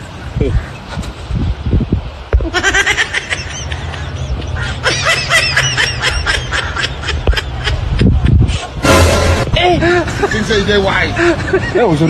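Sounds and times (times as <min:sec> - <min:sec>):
steady low hum: 0:08.1 - 0:10.3.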